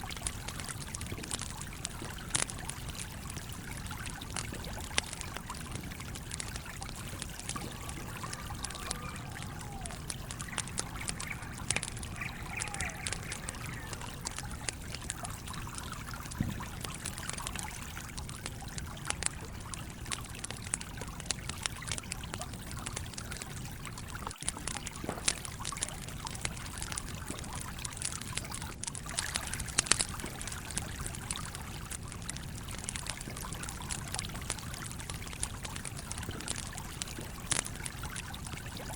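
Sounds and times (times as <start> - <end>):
campfire crackling and popping: 0.0 - 38.9
flowing stream: 0.0 - 38.9.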